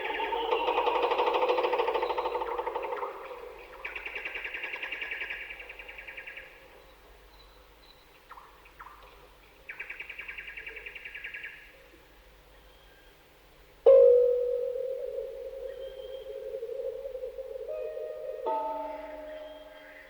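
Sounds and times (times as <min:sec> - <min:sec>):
bird trills: 0:00.0 - 0:06.5, 0:13.9 - 0:20.0.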